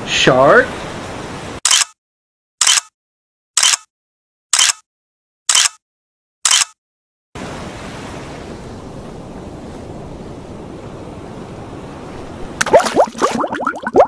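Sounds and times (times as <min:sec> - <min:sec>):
waves breaking: 0:00.0 - 0:01.6, 0:07.4 - 0:13.6
sharp clicks: 0:01.7 - 0:02.0, 0:02.6 - 0:02.9, 0:03.6 - 0:03.9, 0:04.6 - 0:04.8, 0:05.5 - 0:05.8, 0:06.4 - 0:06.8
loud splash: 0:12.6 - 0:14.0.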